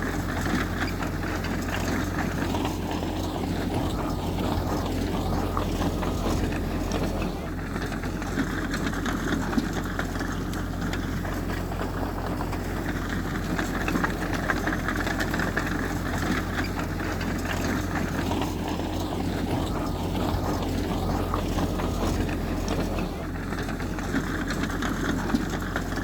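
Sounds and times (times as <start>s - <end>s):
heavy diesel engine rattling: 0.0s - 26.0s.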